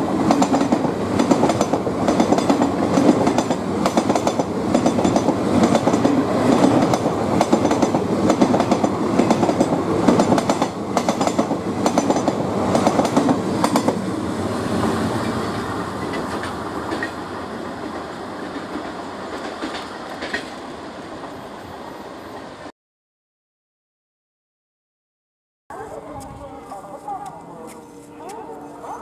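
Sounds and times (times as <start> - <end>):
train wheels clattering over rail joints: 0.3 - 14.0, 15.9 - 17.2, 17.8 - 20.6.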